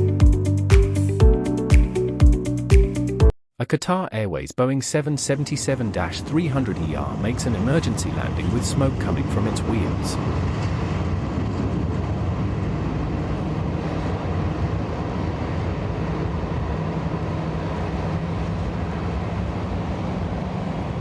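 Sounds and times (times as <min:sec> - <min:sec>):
airliner low rumble with hiss: 0:05.2 - 0:21.0.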